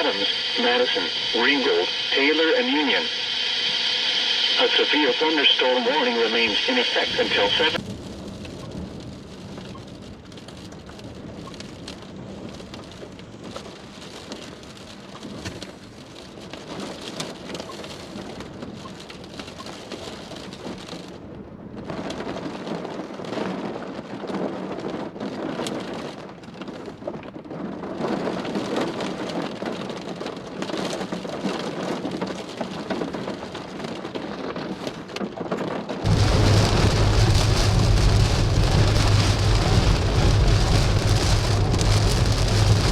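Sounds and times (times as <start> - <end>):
heavy rain beating down: 0.0 - 21.1, 27.6 - 42.9
thunder: 7.3 - 14.6, 20.5 - 42.9
low steady hum: 36.1 - 42.9.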